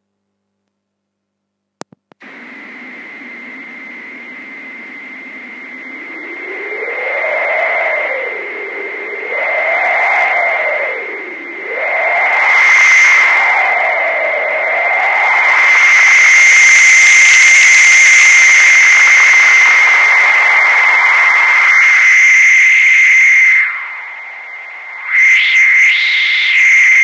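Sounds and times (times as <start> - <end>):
synthesized whooshing wind: 2.2 - 22.2
high-pitched whine: 2.2 - 27.0.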